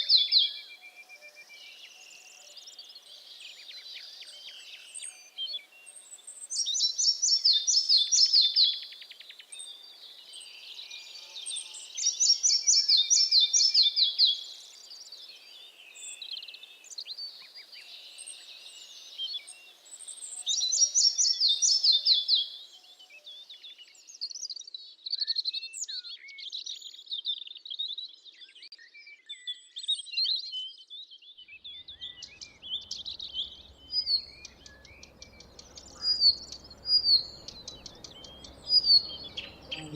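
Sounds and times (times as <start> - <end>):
songbird singing phrases: 0.0 - 39.9
birds chirping: 31.6 - 39.9.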